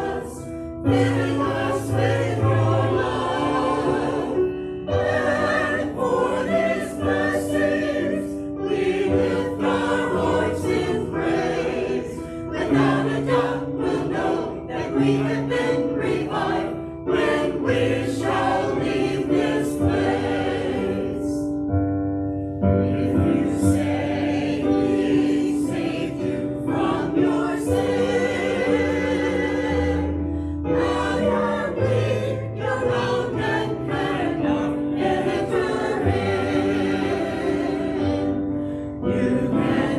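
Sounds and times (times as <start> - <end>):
voices singing together: 0.0 - 21.6, 22.8 - 39.9.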